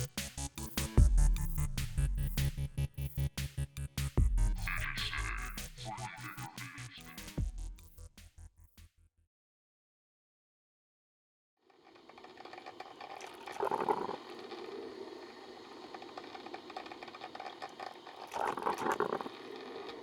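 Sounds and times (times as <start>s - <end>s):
mechanical whirring: 11.8s - 20.0s.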